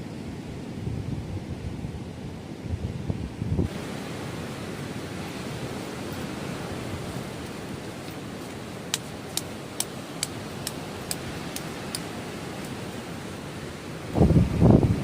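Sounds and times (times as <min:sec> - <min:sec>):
sea surf: 0:00.0 - 0:15.0
wind: 0:00.0 - 0:15.0
sharp evenly spaced clicks: 0:08.9 - 0:12.8.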